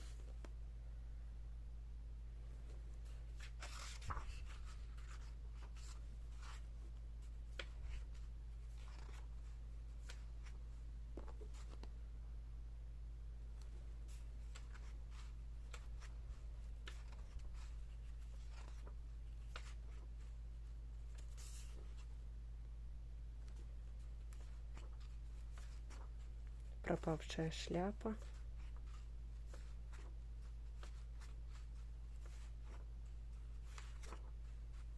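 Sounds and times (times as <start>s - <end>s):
book pages rustling: 0.0s - 0.6s, 2.6s - 12.0s, 13.6s - 22.2s, 23.4s - 27.3s, 27.9s - 34.9s
low electrical hum: 0.0s - 34.9s.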